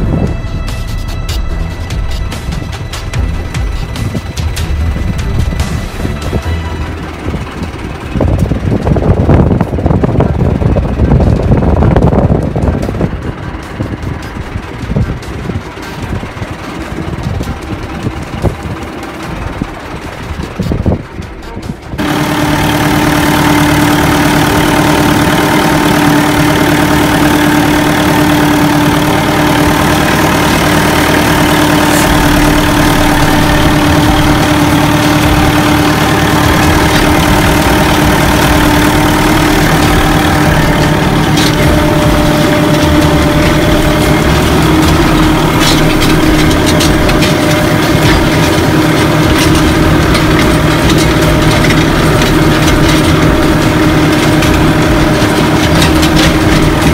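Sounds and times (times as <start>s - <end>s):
tractor diesel engine running: 0.0s - 56.9s
light rattles and clicks: 22.9s - 56.9s.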